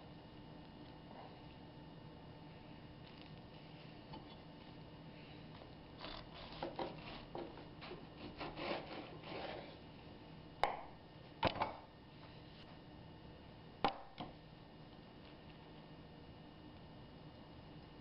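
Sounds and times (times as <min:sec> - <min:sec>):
knife scraping toasted bread: 0:06.0 - 0:09.8.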